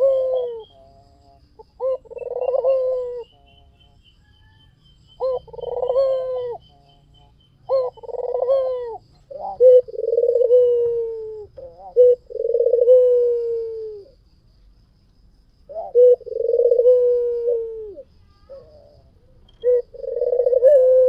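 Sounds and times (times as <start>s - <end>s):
dove cooing: 0.0s - 14.2s, 15.7s - 21.0s.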